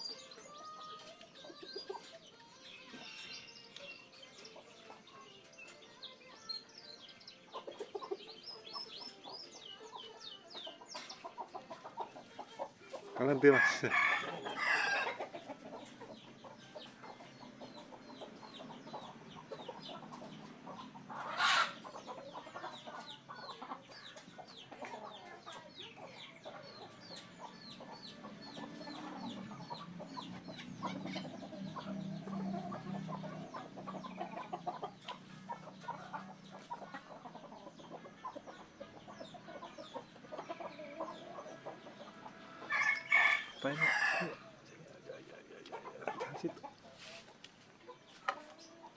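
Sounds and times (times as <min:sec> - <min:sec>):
fowl clucking: 0:10.8 - 0:25.7, 0:26.3 - 0:48.9.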